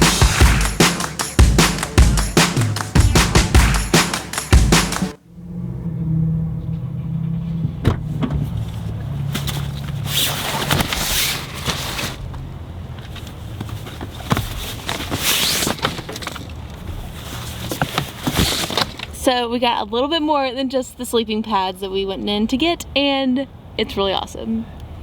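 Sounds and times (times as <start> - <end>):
low engine hum: 5.2 - 10.1.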